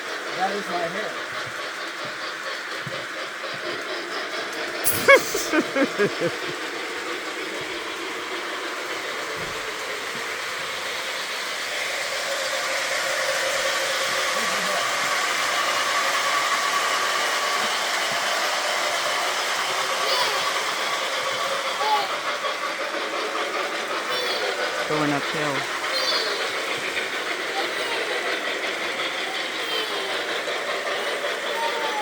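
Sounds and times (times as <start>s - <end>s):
model train whirring on track: 0.0s - 32.0s
child vocalizing high-pitched: 4.9s - 5.9s, 20.0s - 20.5s, 21.8s - 22.2s, 24.1s - 24.5s, 25.9s - 26.4s, 29.6s - 30.2s, 31.5s - 32.0s.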